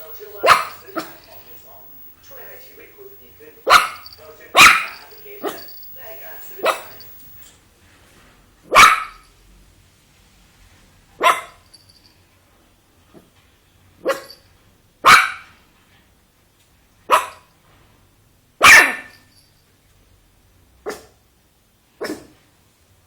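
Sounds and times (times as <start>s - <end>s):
dog barking: 0.0s - 1.6s, 3.6s - 7.4s, 8.7s - 9.3s, 11.2s - 11.6s, 14.0s - 14.4s, 15.0s - 15.5s, 17.1s - 17.4s, 18.6s - 19.2s, 20.9s - 21.1s, 22.0s - 22.4s.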